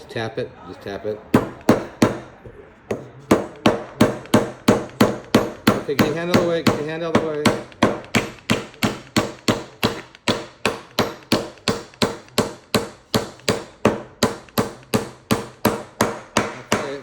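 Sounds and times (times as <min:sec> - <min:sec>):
hammer driving nail into wood: 0:02.9 - 0:17.0.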